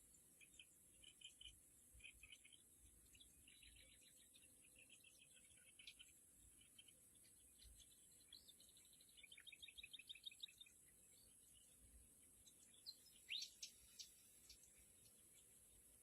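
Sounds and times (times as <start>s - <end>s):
faint bird chirps: 0.0s - 16.0s
steady high-pitched hiss: 0.0s - 16.0s.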